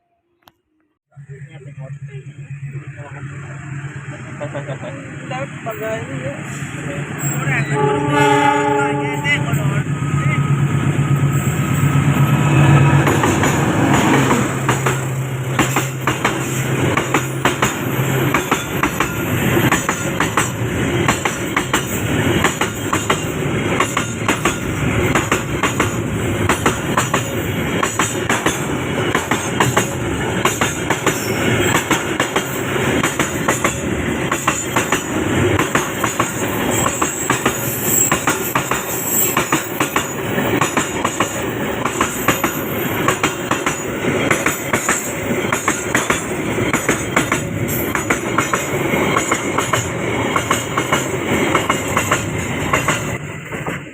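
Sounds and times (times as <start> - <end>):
locomotive engine hum: 1.2 - 38.1
wheels clicking over rail joints: 13.0 - 53.9.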